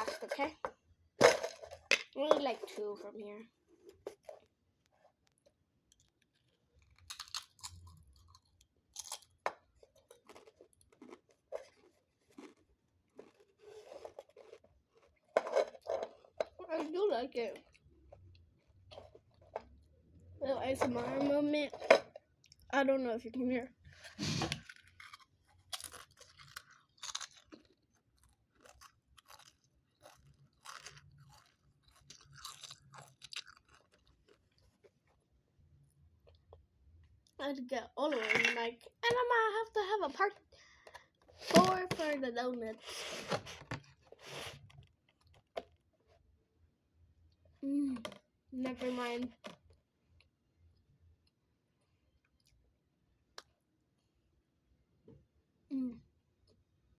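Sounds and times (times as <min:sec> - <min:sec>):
person chewing crunchy food: 0:03.8 - 0:16.6, 0:17.6 - 0:19.9, 0:23.9 - 0:35.2, 0:42.8 - 0:45.8.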